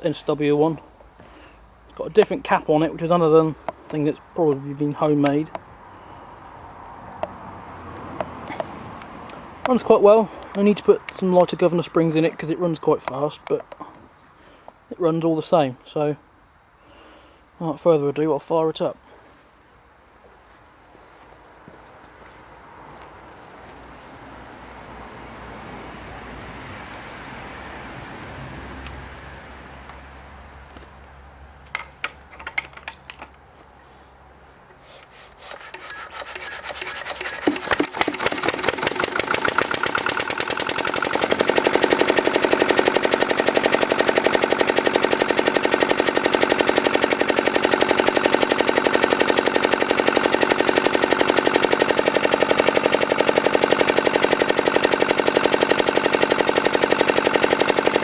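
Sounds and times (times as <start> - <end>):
engine cranking whir: 35.0 - 58.0
diesel engine running: 37.1 - 58.0.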